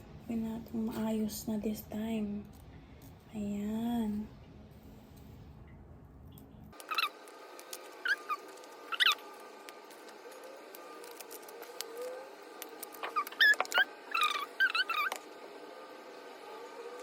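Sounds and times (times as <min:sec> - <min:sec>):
small animal squeaking: 0:06.8 - 0:07.2, 0:08.0 - 0:09.3, 0:12.9 - 0:15.2.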